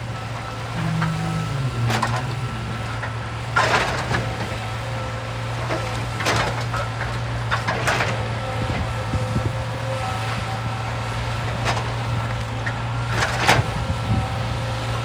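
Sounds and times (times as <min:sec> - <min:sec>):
excavator engine running: 0:00.0 - 0:13.4.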